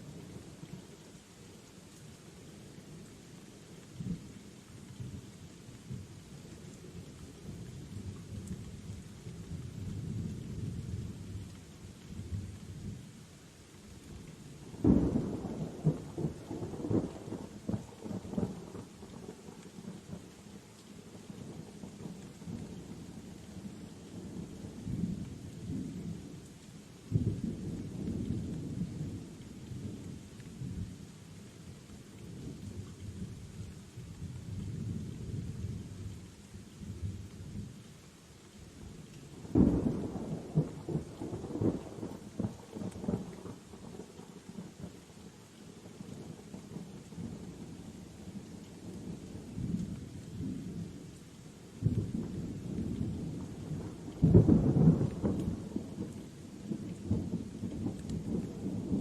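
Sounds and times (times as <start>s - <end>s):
steady rain: 0.0s - 59.0s
thunder rumbling: 51.8s - 56.2s.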